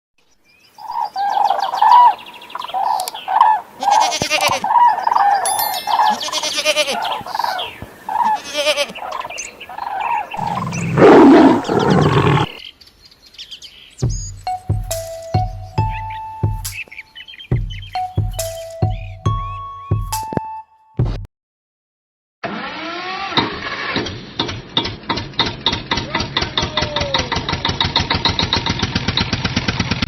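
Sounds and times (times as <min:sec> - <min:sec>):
short repeated animal calls: 0:01.9 - 0:12.6
loud animal roar: 0:10.4 - 0:12.6.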